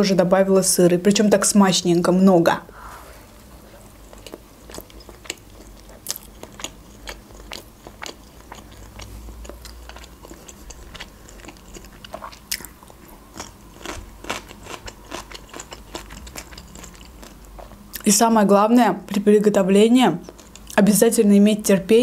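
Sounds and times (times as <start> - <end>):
person chewing bread: 3.6 - 18.0, 20.2 - 20.8.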